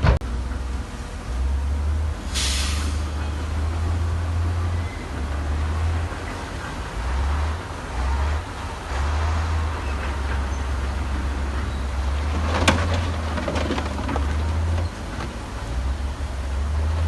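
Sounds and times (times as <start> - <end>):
heavy machinery low rumble: 0.0 - 17.0.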